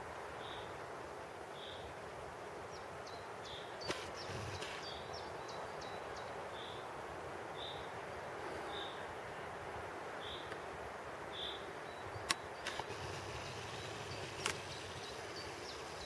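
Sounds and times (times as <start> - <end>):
steady background hiss: 0.0 - 16.0
small birds calling: 2.7 - 6.9, 8.5 - 9.1, 10.2 - 10.6, 11.3 - 16.0
single click: 3.8 - 4.8, 12.3 - 12.9, 14.4 - 14.6.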